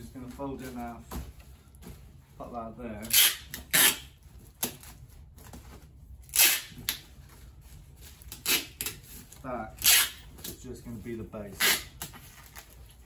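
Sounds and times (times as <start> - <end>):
cardboard crackling and scraping: 0.0 - 3.0.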